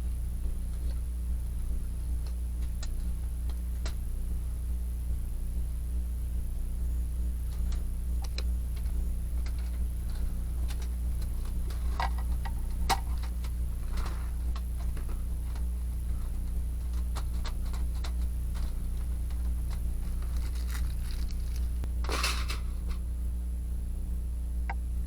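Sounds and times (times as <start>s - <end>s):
steady low hum: 0.0s - 25.0s
wood fire crackling: 7.4s - 23.2s.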